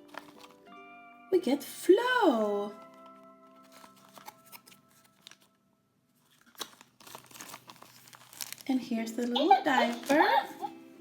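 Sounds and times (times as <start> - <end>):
plastic toy package rustling: 0.0 - 0.7, 2.7 - 10.6
faint background music: 0.0 - 11.0.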